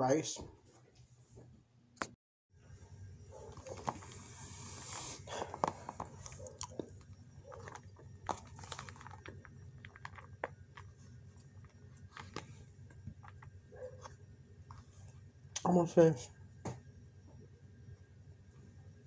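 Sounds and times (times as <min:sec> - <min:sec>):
person chewing: 0:04.7 - 0:12.5
plastic container rustling: 0:07.4 - 0:13.9.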